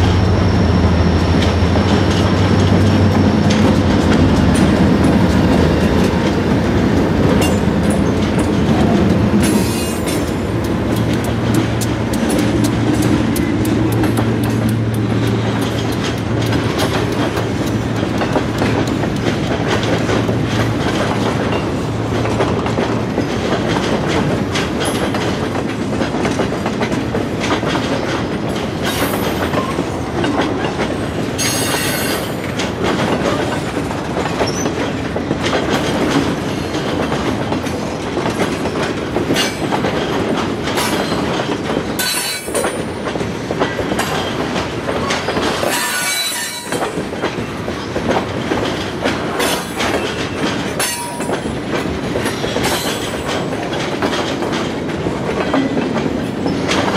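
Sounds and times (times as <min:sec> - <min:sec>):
train wheels clicking over rail joints: 0:00.0 - 0:56.9
train wheels squealing: 0:31.4 - 0:32.5, 0:34.4 - 0:34.8, 0:45.2 - 0:46.9.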